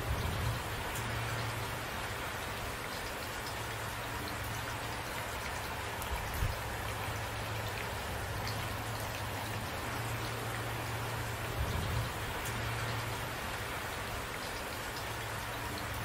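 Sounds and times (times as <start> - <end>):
rain drops tapping: 0.0 - 16.0.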